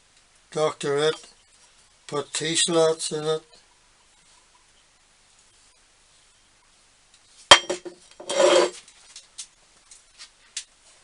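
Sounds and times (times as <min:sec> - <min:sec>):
metal scraping on metal: 0:08.1 - 0:08.8.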